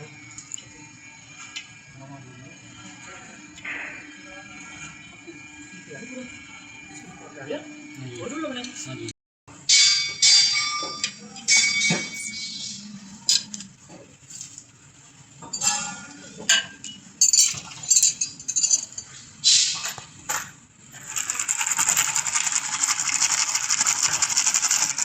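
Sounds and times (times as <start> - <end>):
metal tools clinking: 15.4 - 20.0.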